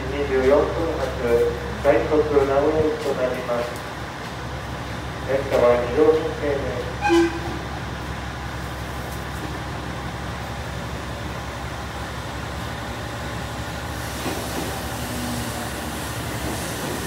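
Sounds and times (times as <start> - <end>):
approaching train rushing: 4.0 - 17.0.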